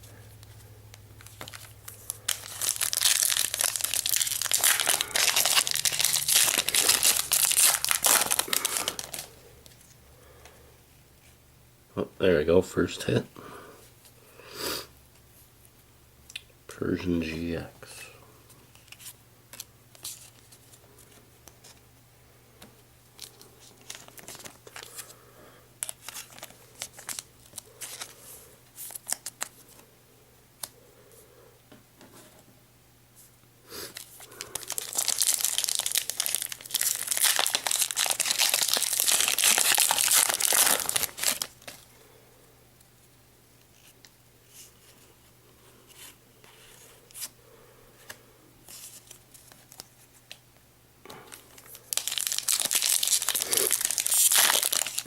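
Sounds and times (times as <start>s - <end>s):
trading cards rustling: 0.3s - 10.0s, 23.2s - 25.1s, 25.8s - 29.8s, 33.9s - 41.9s, 51.1s - 55.0s
foil wrapper tearing and crinkling: 1.2s - 9.4s, 23.2s - 25.1s, 25.8s - 28.2s, 28.8s - 29.6s, 33.9s - 41.9s, 51.3s - 55.0s.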